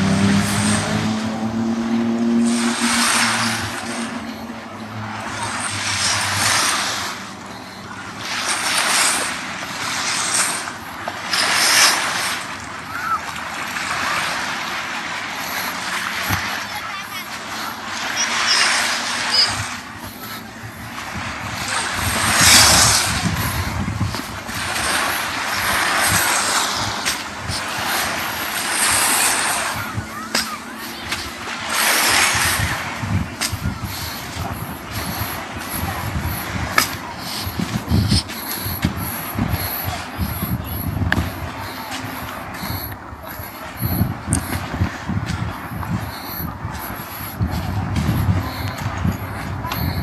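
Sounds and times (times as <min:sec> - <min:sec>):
wind rumble on microphone: 0:00.0 - 0:08.1, 0:19.0 - 0:50.0
low engine hum: 0:00.0 - 0:50.0
small waves washing on beach: 0:00.0 - 0:50.0.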